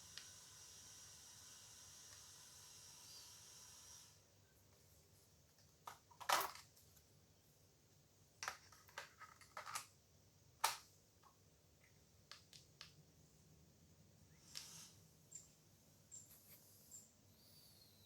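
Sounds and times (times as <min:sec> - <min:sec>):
plastic battery clicks and rattles: 0:08.4 - 0:09.9.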